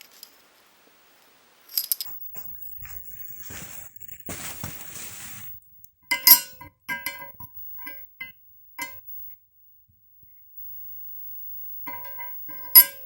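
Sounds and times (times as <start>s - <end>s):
rustle: 0.0s - 2.1s, 3.4s - 5.5s
metallic clinks: 11.9s - 13.0s.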